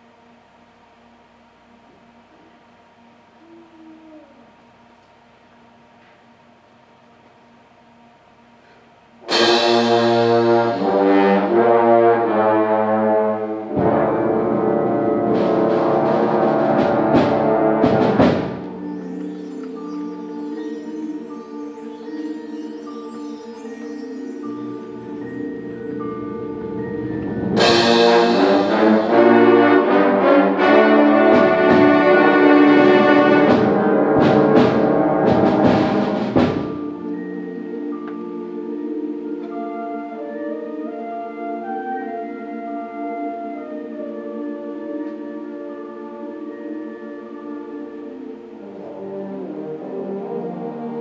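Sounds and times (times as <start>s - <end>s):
concert band playing: 9.2s - 21.4s, 24.3s - 51.0s
held brass chords: 9.2s - 21.8s, 24.4s - 37.3s, 38.8s - 51.0s
percussion strokes: 9.2s - 40.2s.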